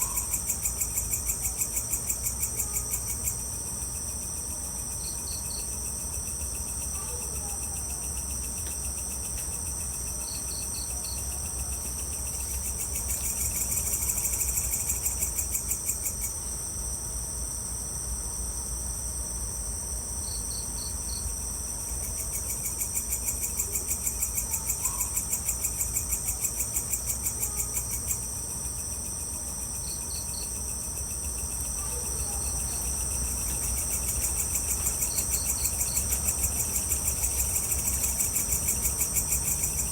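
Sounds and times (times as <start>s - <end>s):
crickets trilling: 0.0s - 39.9s
insect chirps in short groups: 20.2s - 39.9s.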